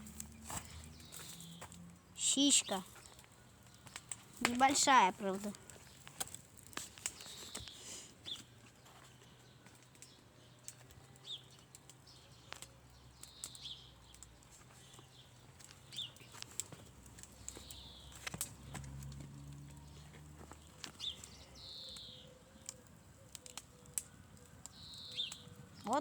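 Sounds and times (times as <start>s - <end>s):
campfire crackling: 0.0s - 26.0s
sharp pops and clicks: 2.7s - 7.8s, 15.6s - 19.6s.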